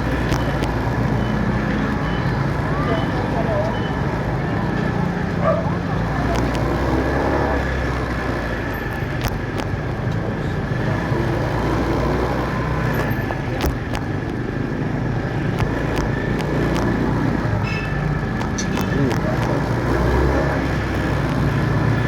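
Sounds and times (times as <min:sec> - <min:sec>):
traffic noise: 0:00.0 - 0:22.0
sharp clicks: 0:15.4 - 0:17.3, 0:18.2 - 0:19.6.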